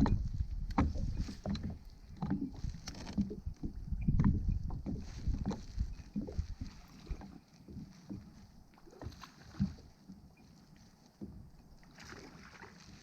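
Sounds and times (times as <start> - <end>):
wind on microphone: 0.0 - 7.4.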